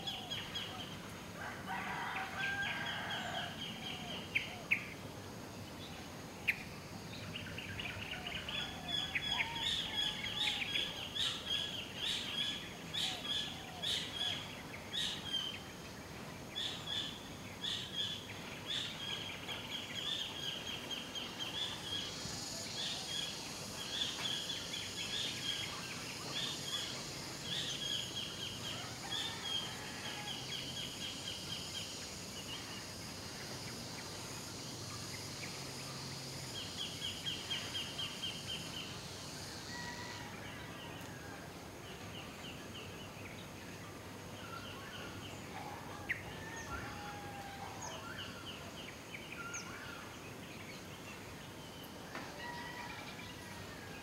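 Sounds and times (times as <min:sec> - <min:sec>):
insects hissing: 0:00.0 - 0:54.0
rooster crowing: 0:01.4 - 0:04.0, 0:28.7 - 0:30.7, 0:39.6 - 0:41.5, 0:45.6 - 0:48.1, 0:52.2 - 0:54.0.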